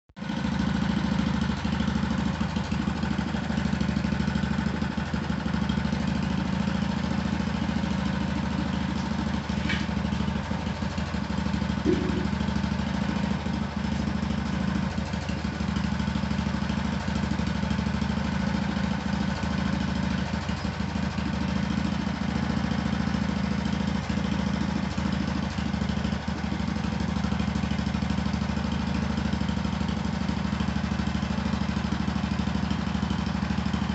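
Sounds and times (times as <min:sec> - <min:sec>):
garden tractor engine running: 0:00.2 - 0:33.9.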